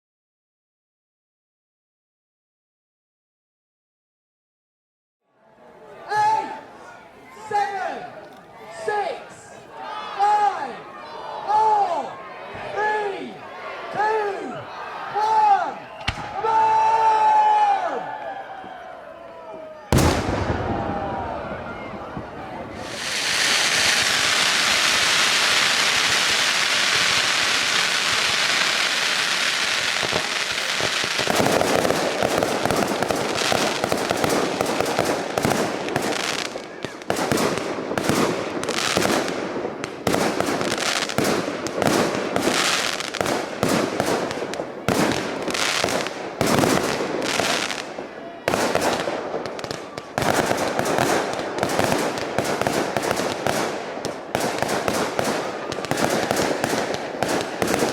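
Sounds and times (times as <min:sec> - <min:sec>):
fireworks bangs and crackles: 0:15.9 - 0:17.3, 0:19.9 - 0:57.9
fireworks hissing: 0:22.7 - 0:37.0.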